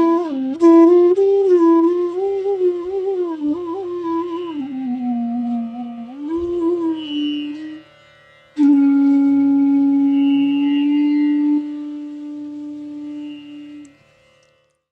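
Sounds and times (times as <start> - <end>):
bamboo flute playing: 0.0 - 14.1.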